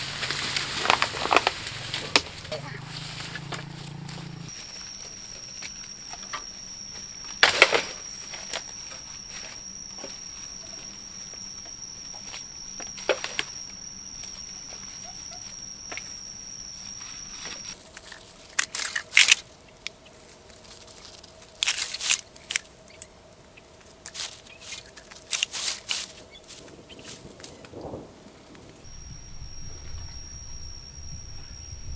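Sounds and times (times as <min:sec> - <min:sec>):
steady high tone: 0:14.3 - 0:31.9.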